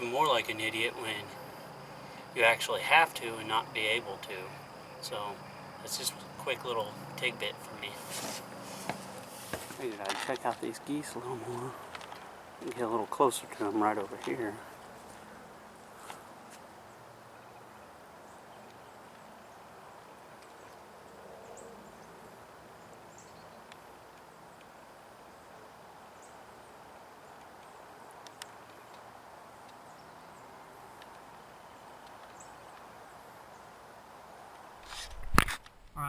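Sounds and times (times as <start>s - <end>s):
faint bird chirps: 0.0s - 9.2s
distant highway traffic hiss: 0.0s - 35.1s.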